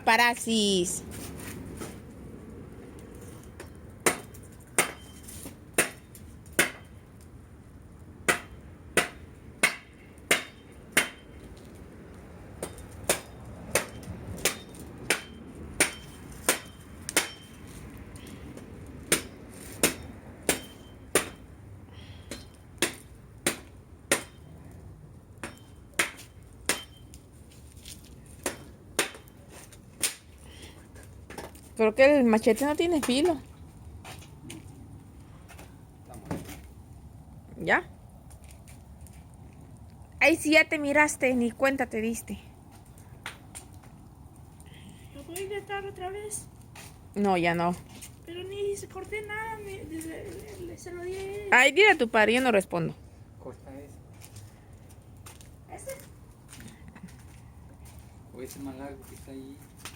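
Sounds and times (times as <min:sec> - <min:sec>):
machete hacking wood: 0:04.0 - 0:05.1, 0:05.8 - 0:06.9, 0:08.3 - 0:11.2, 0:12.6 - 0:17.4, 0:19.1 - 0:21.4, 0:22.3 - 0:24.4, 0:25.4 - 0:27.0, 0:28.4 - 0:29.3, 0:30.0 - 0:30.3.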